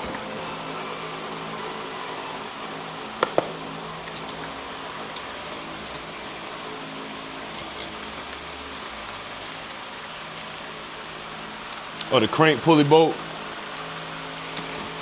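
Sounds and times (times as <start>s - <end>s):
packaging being handled: 0.0s - 0.8s, 1.5s - 2.6s, 3.2s - 10.8s, 13.6s - 15.0s
steady background hum: 0.0s - 15.0s.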